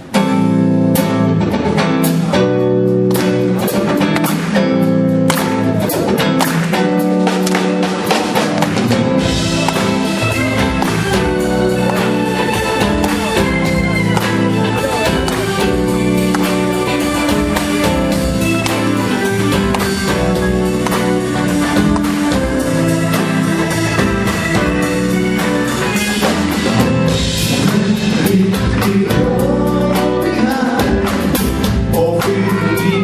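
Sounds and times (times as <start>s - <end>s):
live band music: 0.0s - 33.0s
drum hits: 5.2s - 29.0s.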